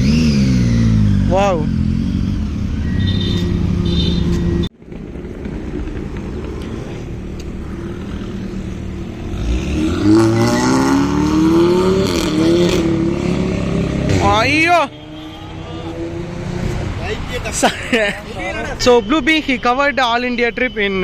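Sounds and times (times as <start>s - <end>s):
vehicle engine accelerating: 0.0s - 14.7s.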